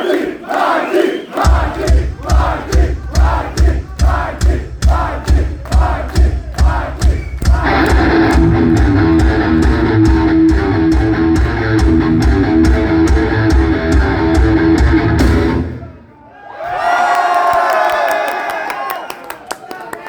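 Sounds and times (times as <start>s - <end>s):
crowd noise: 0.0s - 20.0s
heavy metal band playing: 7.4s - 16.0s.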